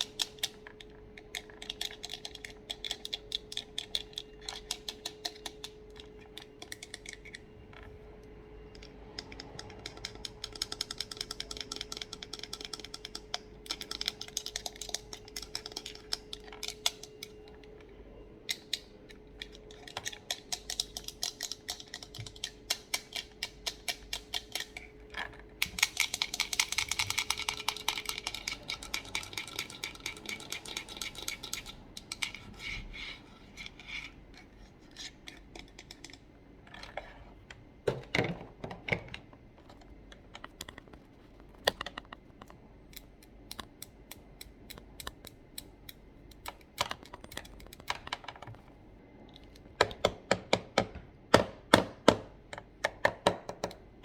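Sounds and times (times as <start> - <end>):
computer keyboard tapping: 8.8 - 17.4, 25.6 - 32.3.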